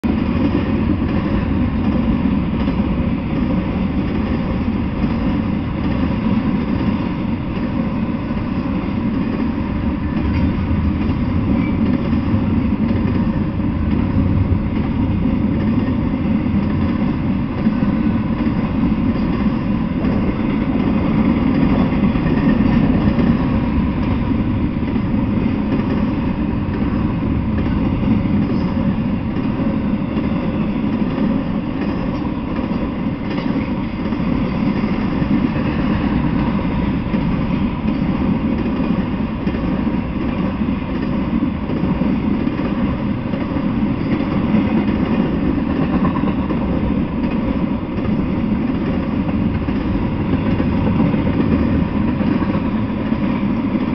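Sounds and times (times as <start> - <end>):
freight train rumbling past: 0.0 - 53.9.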